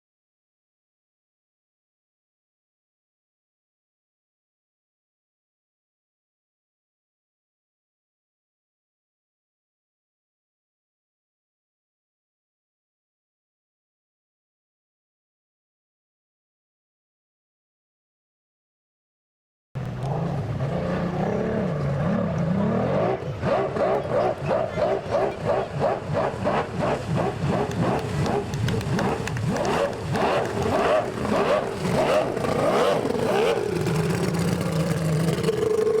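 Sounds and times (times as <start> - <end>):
outboard engine running hard: 19.8 - 36.0.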